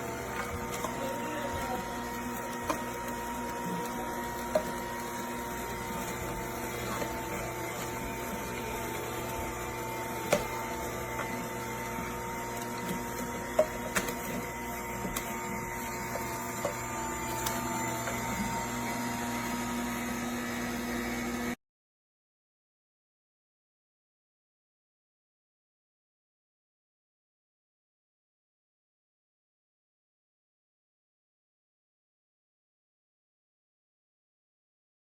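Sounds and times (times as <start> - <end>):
juicer motor hum and whine: 0.0 - 21.6.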